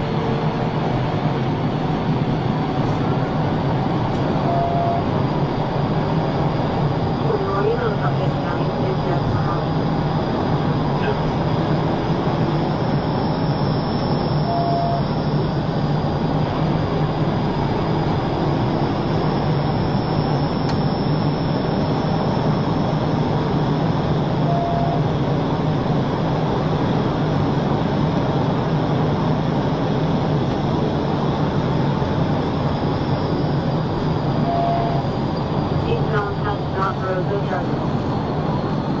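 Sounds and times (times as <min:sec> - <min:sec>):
vehicle road and engine noise: 0:00.0 - 0:39.0
short faint beeps: 0:13.8 - 0:15.2.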